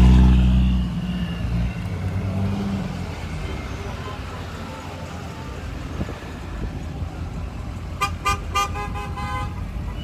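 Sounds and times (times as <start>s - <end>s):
car horns honking: 0.0s - 4.9s, 7.9s - 10.0s
passing traffic rumble: 0.0s - 10.0s.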